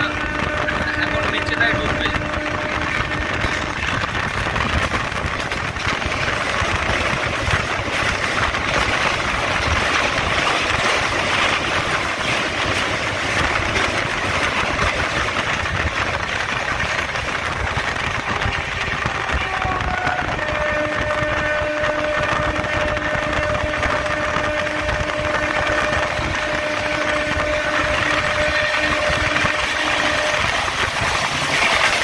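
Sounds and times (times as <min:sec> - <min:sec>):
passing train on next track: 0:00.0 - 0:32.0
train wheels on rails: 0:00.0 - 0:32.0
wind: 0:00.0 - 0:32.0.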